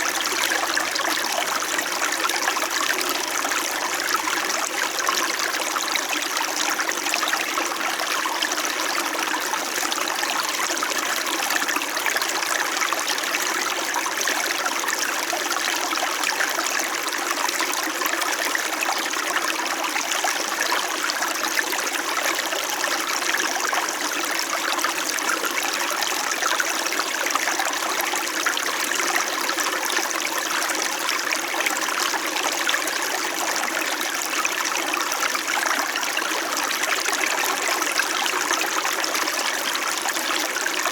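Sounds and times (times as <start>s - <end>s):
stream babbling over stones: 0.0s - 7.0s.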